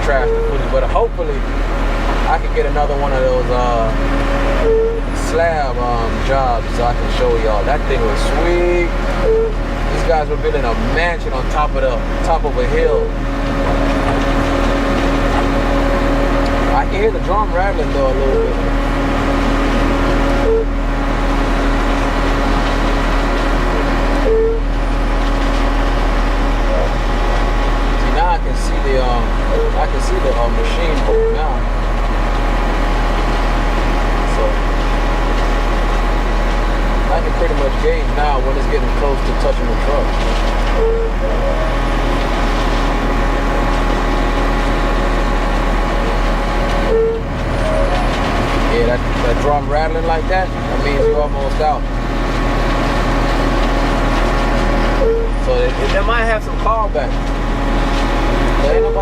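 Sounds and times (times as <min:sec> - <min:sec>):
mixer truck engine running: 0:00.0 - 0:59.0
mixing drum rattling: 0:00.0 - 0:59.0
short beep: 0:04.6 - 0:05.0, 0:09.2 - 0:09.6, 0:20.4 - 0:20.8, 0:24.2 - 0:24.7, 0:40.8 - 0:41.3, 0:46.9 - 0:48.1, 0:55.0 - 0:55.4
short tone: 0:04.6 - 0:05.1, 0:09.2 - 0:09.6, 0:20.4 - 0:20.8, 0:24.2 - 0:24.7, 0:31.1 - 0:31.5, 0:40.7 - 0:41.6, 0:46.8 - 0:49.0, 0:55.0 - 0:55.5.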